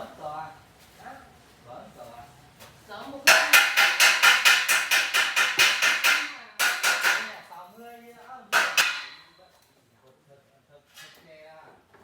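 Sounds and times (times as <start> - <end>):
hammering on metal: 3.3 - 7.5, 8.5 - 9.4.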